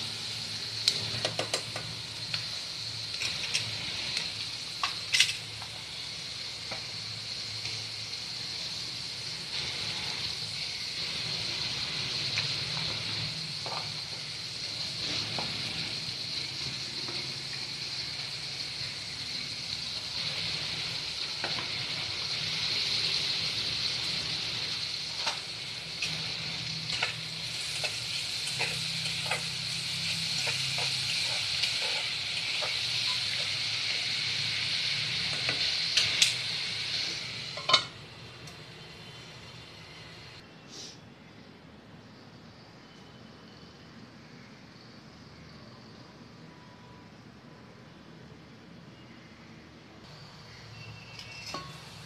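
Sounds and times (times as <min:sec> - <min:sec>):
food sizzling in oil: 0:00.0 - 0:40.4, 0:50.1 - 0:52.0
steel lid clanking onto pan: 0:37.6 - 0:38.0.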